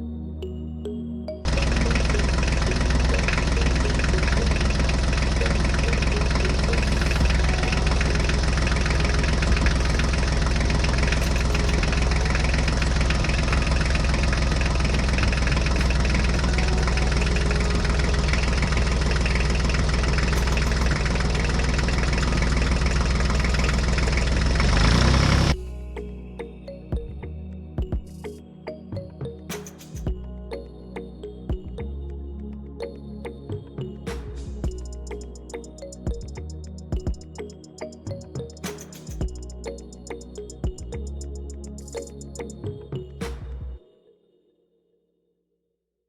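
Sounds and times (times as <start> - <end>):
tractor engine idling with clatter: 1.5 - 25.6.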